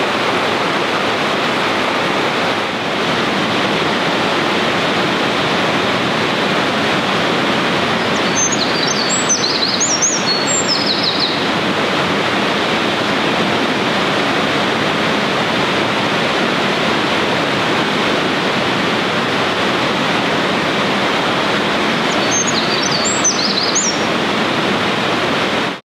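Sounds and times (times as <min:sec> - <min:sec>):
stream rushing: 0:00.0 - 0:25.8
wren singing: 0:08.0 - 0:11.5, 0:22.0 - 0:24.1.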